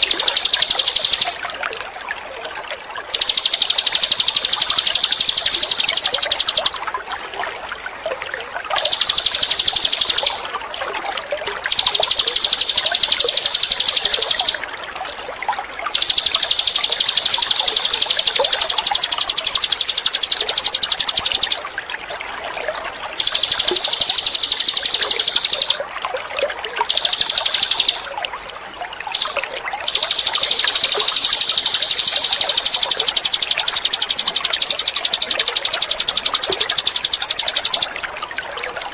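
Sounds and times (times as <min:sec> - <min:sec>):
songbird buzzing trill: 0:00.0 - 0:01.5, 0:03.2 - 0:06.8, 0:08.8 - 0:10.5, 0:11.7 - 0:14.6, 0:16.0 - 0:21.6, 0:23.2 - 0:25.9, 0:26.9 - 0:28.1, 0:29.2 - 0:37.9
trickle of running water: 0:00.0 - 0:38.9.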